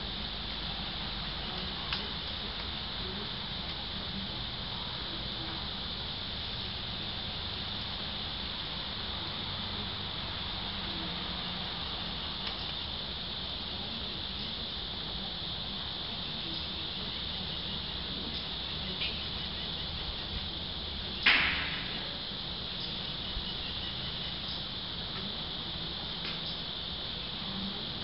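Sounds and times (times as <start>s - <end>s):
high-pitched insect trilling: 0.0s - 28.0s
loud sharp knock: 21.2s - 22.0s.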